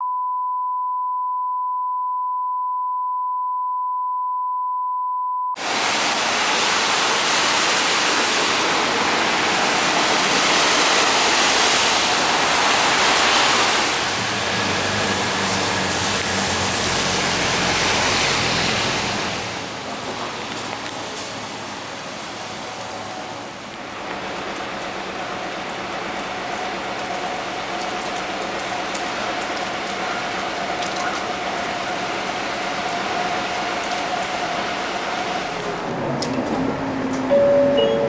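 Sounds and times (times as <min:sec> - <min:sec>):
heavy rain hissing: 0:05.6 - 0:37.1
low bus engine hum: 0:09.1 - 0:23.7, 0:29.2 - 0:38.0
steady test tone: 0:37.3 - 0:38.0.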